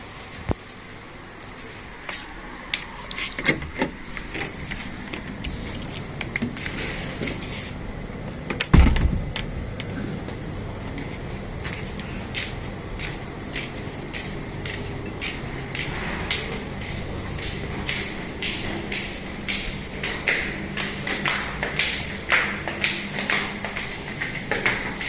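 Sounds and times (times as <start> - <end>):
steady background hum: 0.0 - 25.0
heavy thump: 8.7 - 9.5.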